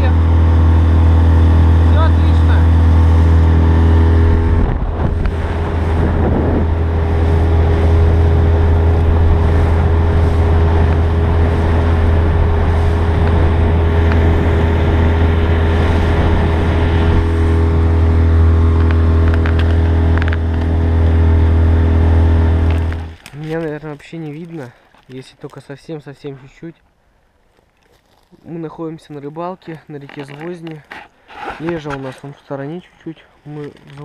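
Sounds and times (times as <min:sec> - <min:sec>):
outboard motor running: 0:00.0 - 0:23.8.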